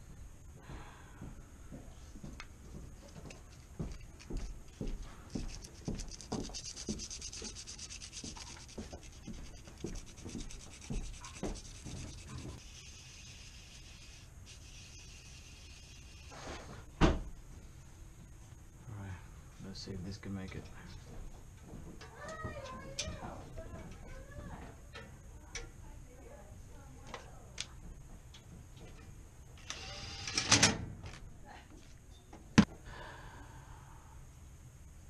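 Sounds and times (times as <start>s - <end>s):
sandpaper rubbing metal rod: 5.5s - 16.4s.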